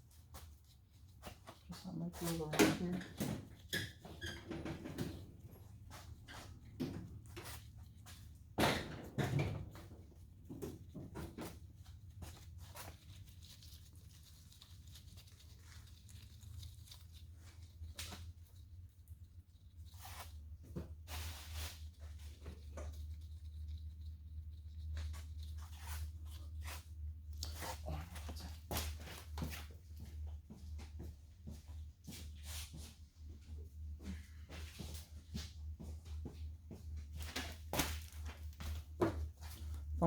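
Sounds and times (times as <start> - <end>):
steady low hum: 9.7 - 40.0.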